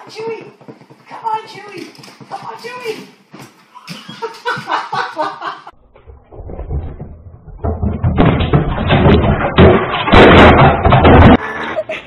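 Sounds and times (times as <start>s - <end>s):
low rumble: 5.7s - 8.8s
loud knocking and clattering thumps: 6.3s - 11.4s.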